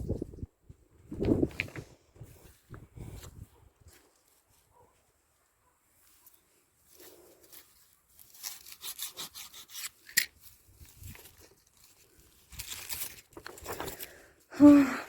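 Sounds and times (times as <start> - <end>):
rustling and scraping of leaves: 6.0 - 14.4.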